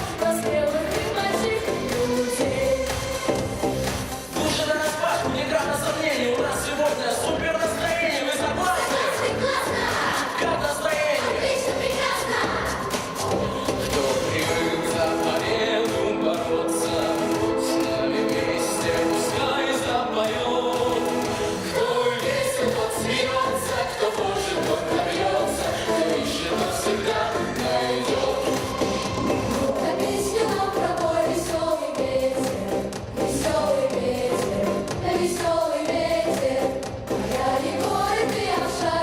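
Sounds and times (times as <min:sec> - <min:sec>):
children's choir singing: 0:00.0 - 0:03.5, 0:06.2 - 0:39.0
instrumental accompaniment with beat: 0:00.0 - 0:39.0.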